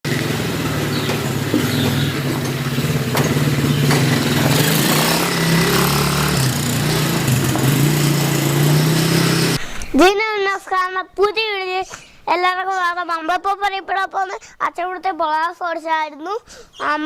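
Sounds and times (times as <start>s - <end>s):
quad bike engine running: 0.1s - 9.6s.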